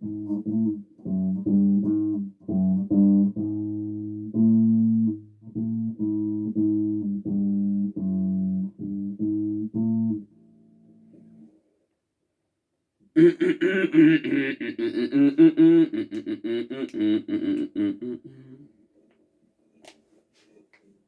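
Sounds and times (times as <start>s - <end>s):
bass guitar plucked notes: 0.0s - 10.4s
loud vocal sound: 13.2s - 18.6s.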